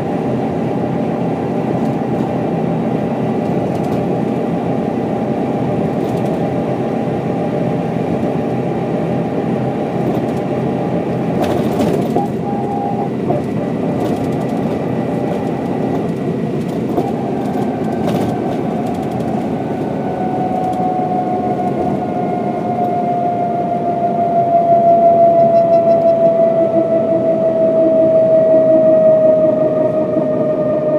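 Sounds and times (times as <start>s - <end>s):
bus diesel engine: 0.0s - 30.9s
whine falling in pitch: 12.1s - 13.3s, 19.7s - 30.9s.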